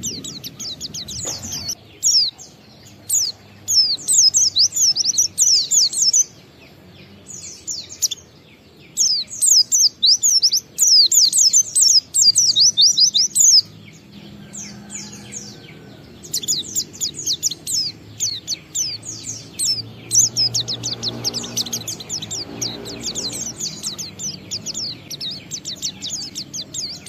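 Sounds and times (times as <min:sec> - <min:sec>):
bird twittering song: 0:00.0 - 0:27.0.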